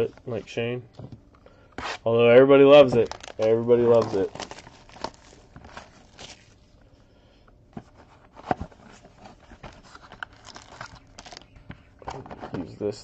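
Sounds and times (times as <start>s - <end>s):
rustling of cards and packaging: 1.8s - 6.8s, 7.8s - 13.0s.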